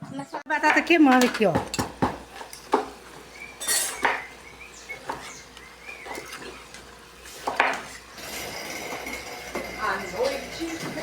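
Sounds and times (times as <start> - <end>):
utensil clinking in a pan: 3.6 - 4.1.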